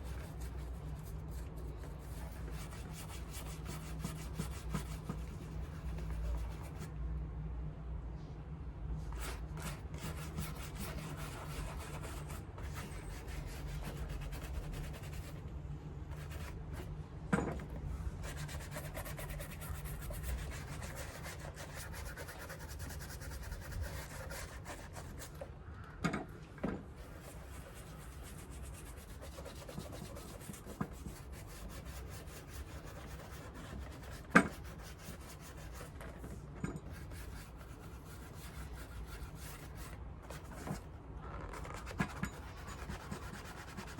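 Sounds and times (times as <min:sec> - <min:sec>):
rubbing on shoe leather: 0:27.1 - 0:36.1.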